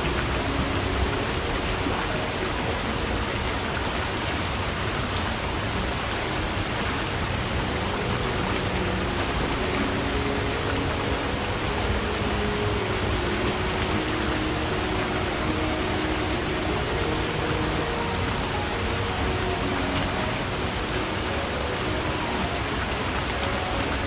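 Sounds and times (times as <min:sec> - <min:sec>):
low water gurgling: 0:00.0 - 0:24.0
stream flowing: 0:00.0 - 0:24.0.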